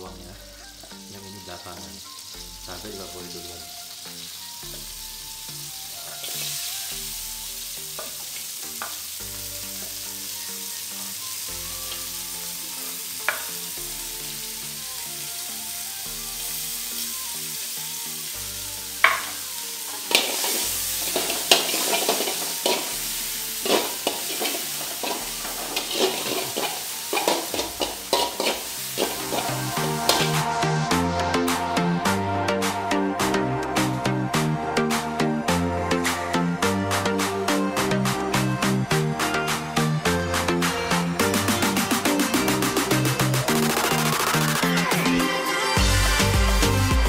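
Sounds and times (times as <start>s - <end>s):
background music: 0.0s - 47.0s
vegetables sizzling in butter: 0.1s - 31.6s
metal spatula scraping wok: 19.0s - 30.4s.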